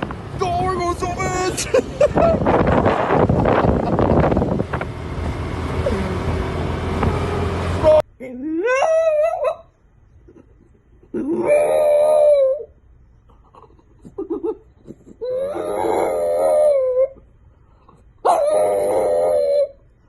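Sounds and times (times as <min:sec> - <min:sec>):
dog howling: 0:11.2 - 0:12.7, 0:15.2 - 0:17.2, 0:18.2 - 0:19.8.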